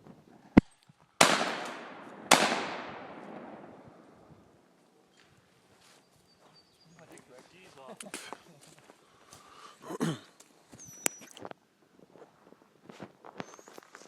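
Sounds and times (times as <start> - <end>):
rolling echo: 0.6 - 4.7
rifle shots: 1.2 - 4.2.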